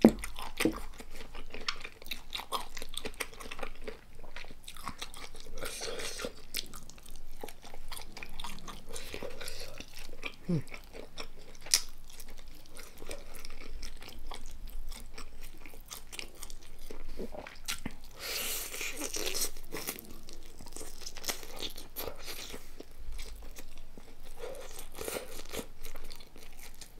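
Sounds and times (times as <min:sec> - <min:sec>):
crunching and chewing food: 0:00.0 - 0:26.9.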